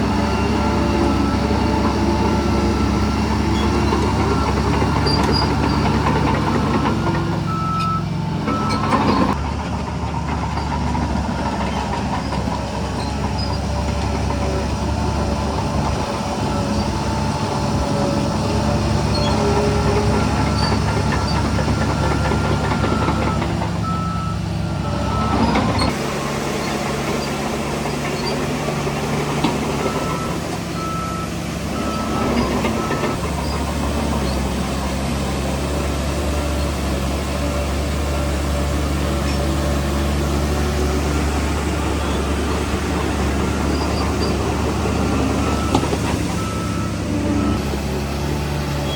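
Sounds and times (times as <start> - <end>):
heavy diesel engines running: 0.0 - 48.9
reversing alarm beeping: 7.5 - 9.6, 20.3 - 25.9, 29.8 - 33.2, 43.1 - 47.8.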